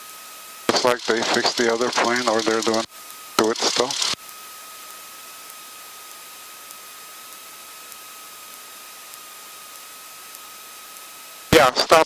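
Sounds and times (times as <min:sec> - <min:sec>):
faint high whine: 0:00.0 - 0:12.0
headset intercom hiss: 0:00.7 - 0:04.2, 0:11.5 - 0:12.0.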